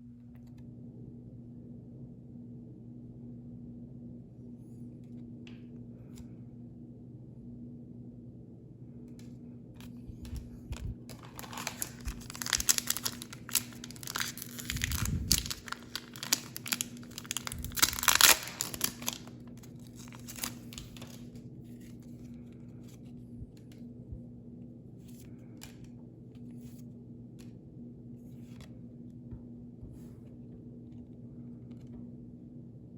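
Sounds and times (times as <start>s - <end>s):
faint low hum: 0.0s - 32.9s
foil wrapper tearing and crinkling: 10.3s - 21.4s.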